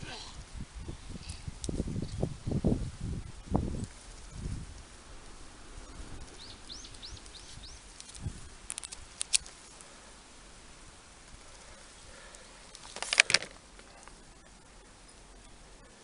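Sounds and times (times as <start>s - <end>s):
bird chirping: 6.2s - 9.0s
sharp clicks: 8.0s - 9.6s, 12.3s - 14.2s.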